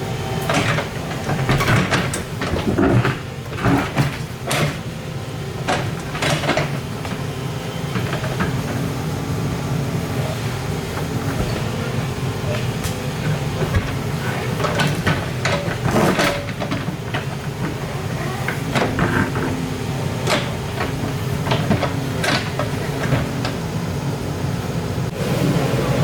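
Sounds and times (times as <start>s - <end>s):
excavator diesel engine running: 0.0s - 26.0s
metallic clanks and scrapes: 10.2s - 23.6s.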